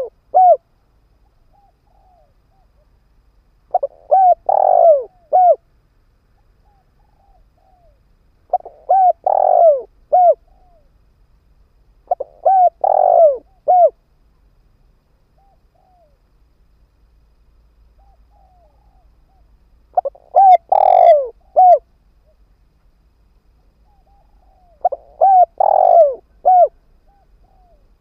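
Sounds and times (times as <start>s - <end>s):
dove cooing song: 0.0s - 0.7s, 1.4s - 2.9s, 3.7s - 5.7s, 6.4s - 10.9s, 12.0s - 14.0s, 15.3s - 16.2s, 17.9s - 22.4s, 23.8s - 28.0s
soft short dove coos: 3.7s - 5.6s, 6.6s - 10.9s, 12.1s - 14.0s, 20.0s - 21.8s, 23.8s - 28.0s.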